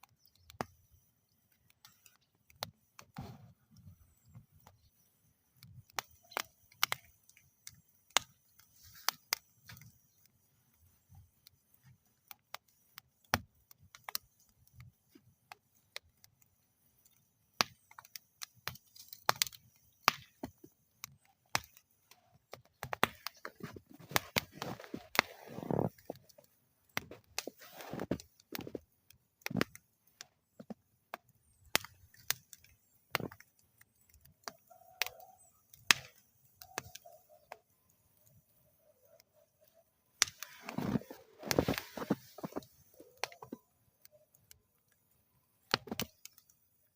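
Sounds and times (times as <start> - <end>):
wood fire crackling: 0.0 - 46.9.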